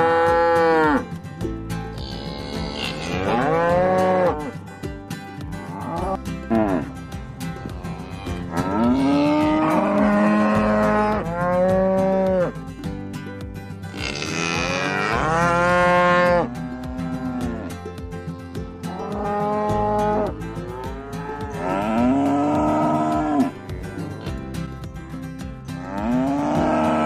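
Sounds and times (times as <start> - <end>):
cattle mooing: 2.0 - 4.6, 5.6 - 6.9, 7.7 - 12.6, 13.9 - 17.7, 18.9 - 24.2, 25.8 - 27.0.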